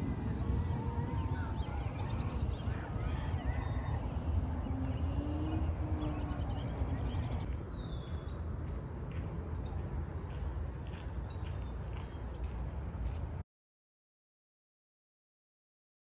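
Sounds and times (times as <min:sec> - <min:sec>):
birds chirping and calling: 0:00.0 - 0:07.5
steady low rumble: 0:00.0 - 0:13.4.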